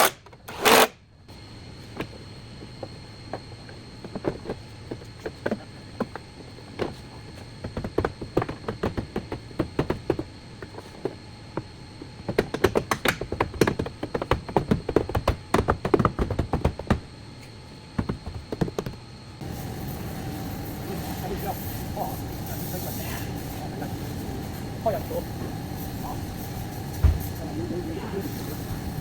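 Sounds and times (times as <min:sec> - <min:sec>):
hard objects tapping and knocking: 0:07.6 - 0:17.1.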